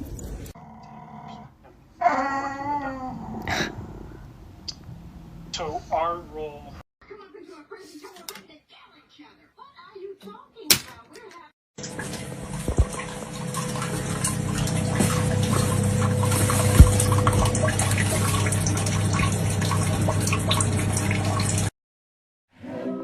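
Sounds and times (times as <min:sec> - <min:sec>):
water running: 0:11.8 - 0:21.7.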